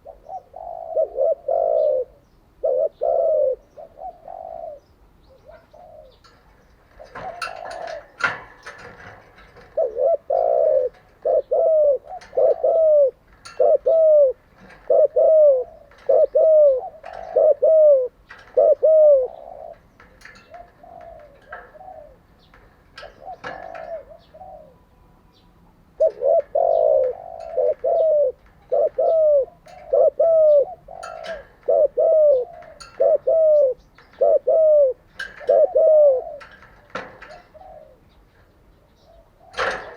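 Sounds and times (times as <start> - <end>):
doves cooing: 0.0 - 39.9
small birds chirping: 0.0 - 39.9.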